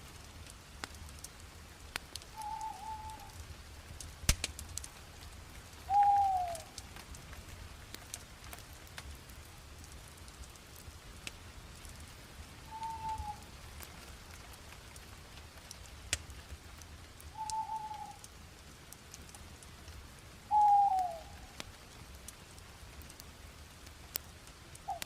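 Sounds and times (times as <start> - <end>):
bonfire crackling and popping: 0.0 - 25.0
short whistles: 2.4 - 3.4, 12.7 - 13.4, 17.4 - 18.2.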